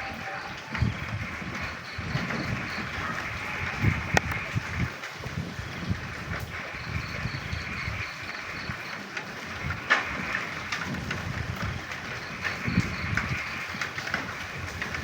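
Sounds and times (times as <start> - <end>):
frogs croaking: 0.0 - 15.0
rain hissing: 0.0 - 15.0.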